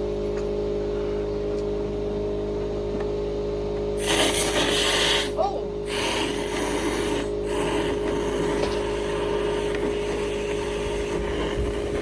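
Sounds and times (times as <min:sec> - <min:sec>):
hiss of moving air: 0:04.0 - 0:12.0
motor hum: 0:04.0 - 0:12.0.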